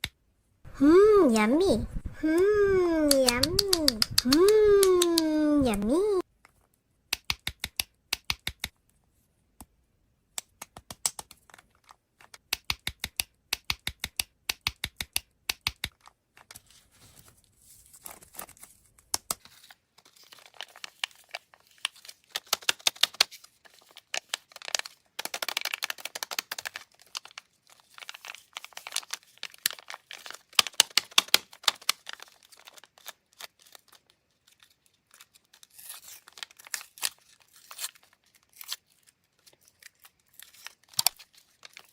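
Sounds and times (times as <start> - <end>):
quick sharp clicks: 3.0 - 5.3
plastic wrapper crinkling and tearing: 15.9 - 41.9.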